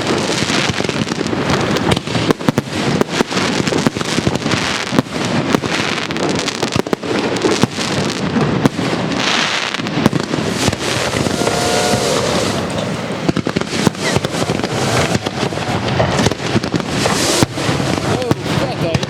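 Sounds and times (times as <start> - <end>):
fireworks bursting and crackling: 0.0 - 19.0
faint fireworks whistles: 10.6 - 18.7.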